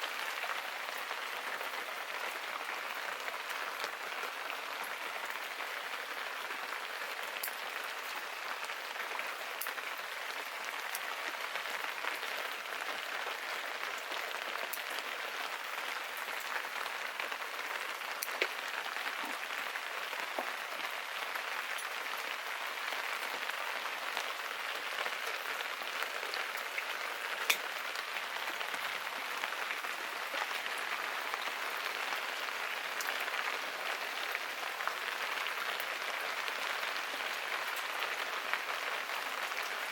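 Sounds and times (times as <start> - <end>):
drips and ticks: 7.2 - 8.2, 13.4 - 22.0, 23.2 - 33.3
rain hissing: 14.1 - 32.6.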